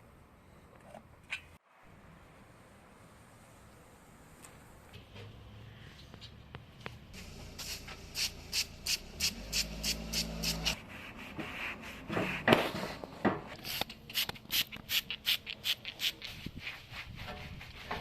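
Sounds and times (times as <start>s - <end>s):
loud scrape: 7.2s - 13.1s
hand rubbing strokes: 7.2s - 18.0s.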